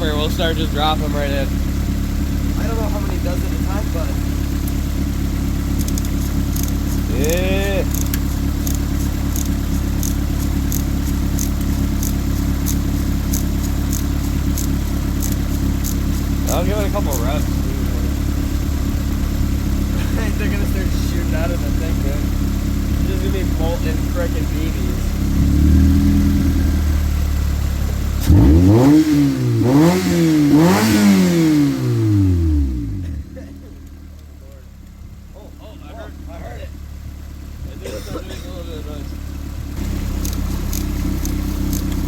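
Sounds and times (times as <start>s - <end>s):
car engine idling: 0.0s - 42.0s
sharp high tick: 7.9s - 16.4s.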